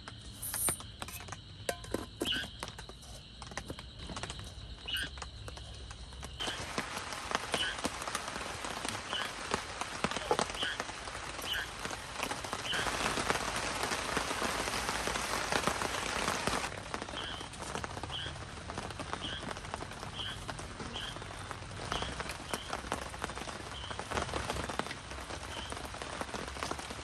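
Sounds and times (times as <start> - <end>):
rain drops ticking on surface: 0.0 - 27.0
small animal high call: 11.4 - 11.8.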